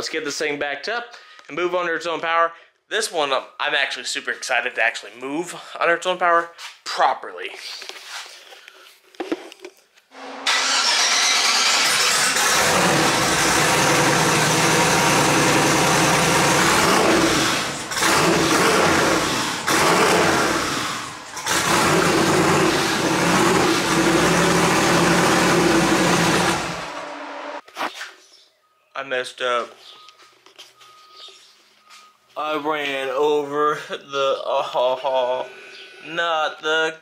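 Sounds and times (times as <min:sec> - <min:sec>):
car engine starting and revving: 0:10.2 - 0:27.6.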